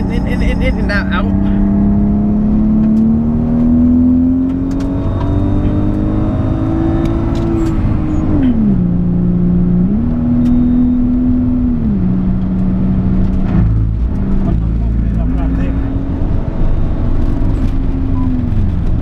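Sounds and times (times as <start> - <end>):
car engine accelerating: 0.0 - 19.0
road and wind noise: 0.0 - 19.0.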